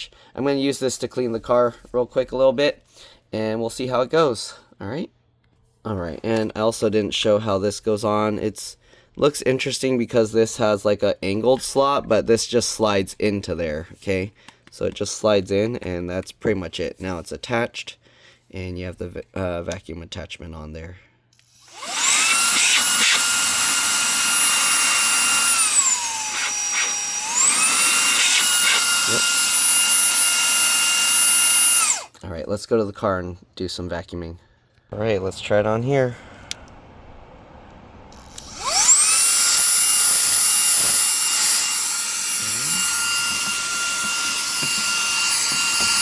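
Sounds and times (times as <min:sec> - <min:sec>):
handheld vacuum motor whine: 0:21.4 - 0:32.1, 0:38.2 - 0:46.0
rushing air: 0:35.0 - 0:39.8.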